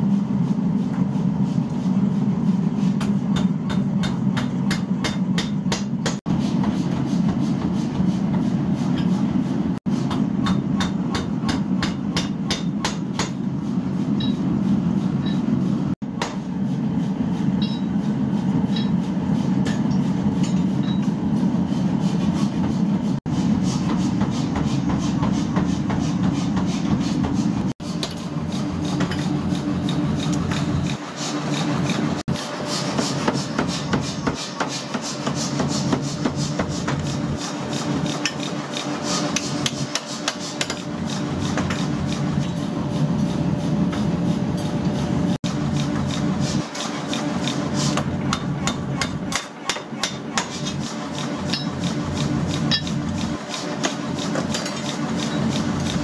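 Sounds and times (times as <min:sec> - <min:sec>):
metallic hammer strikes on iron: 0:03.0 - 0:06.2, 0:10.1 - 0:13.4, 0:17.6 - 0:18.0, 0:18.7 - 0:21.1, 0:48.0 - 0:50.6, 0:51.5 - 0:51.8.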